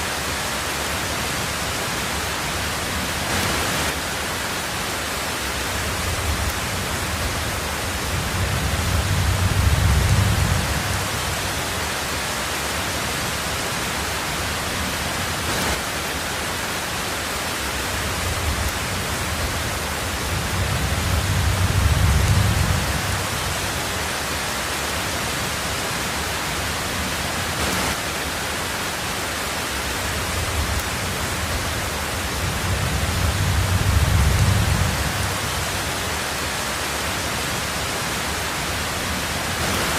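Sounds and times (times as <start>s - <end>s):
heavy rain on a tin roof: 0.0s - 39.9s
thunder rumbles: 5.7s - 11.7s, 17.9s - 24.0s, 30.0s - 36.1s.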